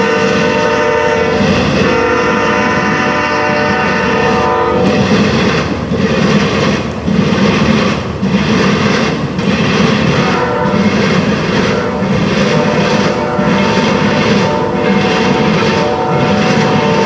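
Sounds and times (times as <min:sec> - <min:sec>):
locomotive air horn chord: 0:00.0 - 0:05.1, 0:10.2 - 0:11.0, 0:11.6 - 0:17.0
passing train rumble: 0:00.0 - 0:17.0.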